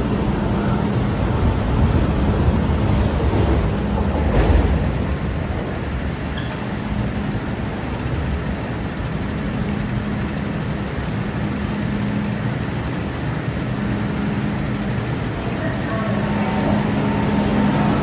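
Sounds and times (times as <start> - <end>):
train rumbling underground: 0.0 - 9.0, 15.2 - 18.0.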